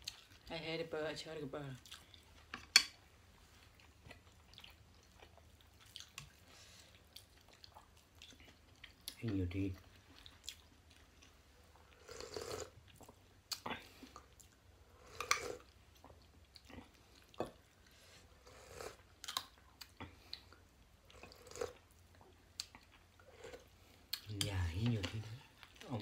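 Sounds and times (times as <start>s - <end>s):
people chewing and eating: 0.0s - 0.5s, 1.8s - 26.0s
food crunching: 7.0s - 17.7s, 18.5s - 26.0s.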